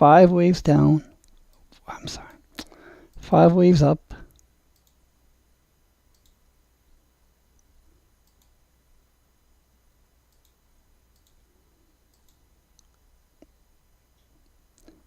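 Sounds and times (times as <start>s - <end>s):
faint low hum: 0.0s - 15.0s
computer mouse clicks: 4.3s - 5.0s, 6.1s - 6.4s, 7.6s - 8.6s, 10.3s - 11.4s, 12.1s - 13.5s.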